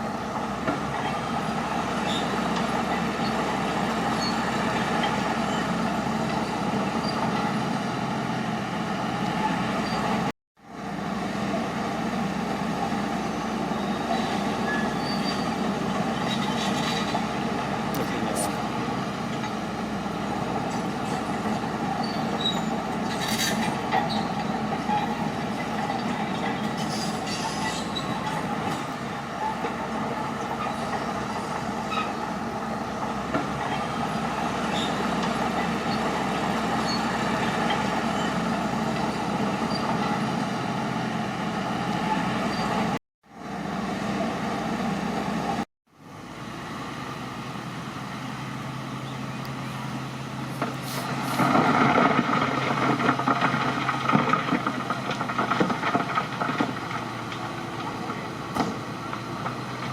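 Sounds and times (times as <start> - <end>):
diesel engine running: 0.0 - 59.9
steel tracks clattering: 50.6 - 59.9.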